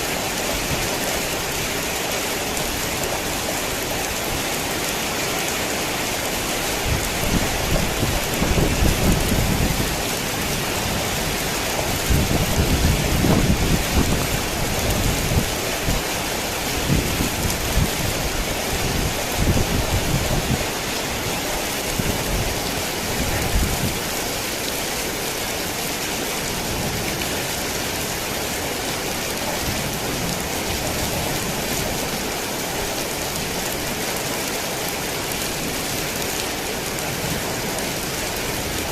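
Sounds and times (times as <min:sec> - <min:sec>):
heavy rain: 0:00.0 - 0:38.9
thunder rumbling: 0:06.9 - 0:16.0.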